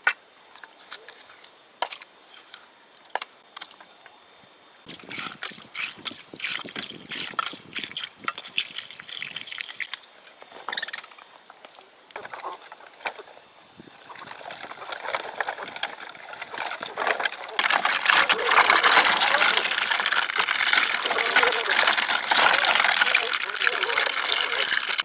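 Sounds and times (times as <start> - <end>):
water splashing and trickling: 4.9 - 10.1, 14.2 - 25.0.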